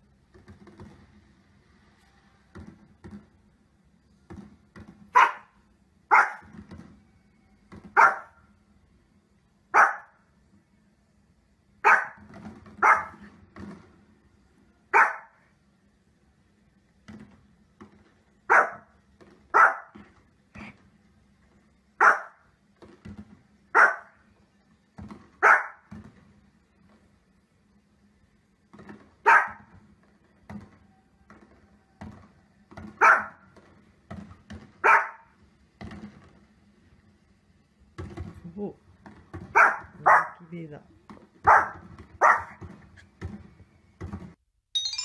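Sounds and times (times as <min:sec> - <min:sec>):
small dog barking: 0:05.1 - 0:06.5, 0:08.0 - 0:08.4, 0:09.7 - 0:10.2, 0:11.8 - 0:12.2, 0:12.8 - 0:13.2, 0:14.9 - 0:15.4, 0:18.5 - 0:18.9, 0:19.5 - 0:20.0, 0:22.0 - 0:22.4, 0:23.7 - 0:24.2, 0:25.4 - 0:25.8, 0:29.2 - 0:29.7, 0:33.0 - 0:33.4, 0:34.8 - 0:35.3, 0:39.5 - 0:40.5, 0:41.4 - 0:42.6.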